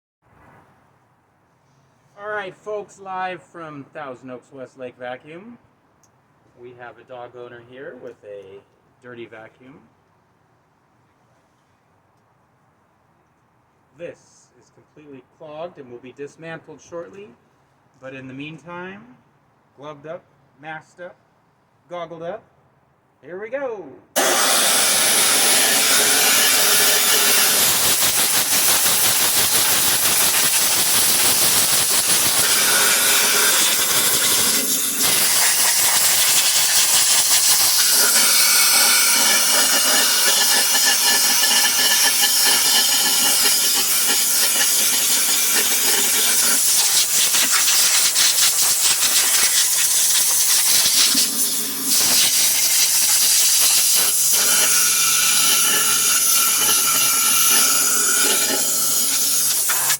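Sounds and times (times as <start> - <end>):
compressed air blow gun hissing: 24.2 - 38.1, 43.4 - 59.9.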